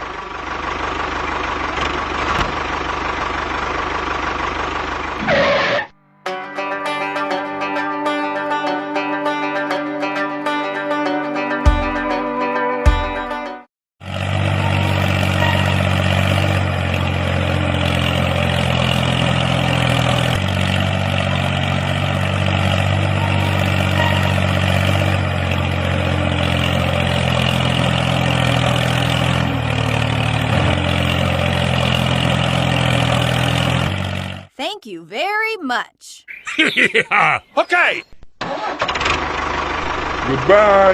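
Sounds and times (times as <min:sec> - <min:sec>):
engine idling: 0:00.0 - 0:05.8, 0:14.0 - 0:34.5, 0:38.5 - 0:40.9.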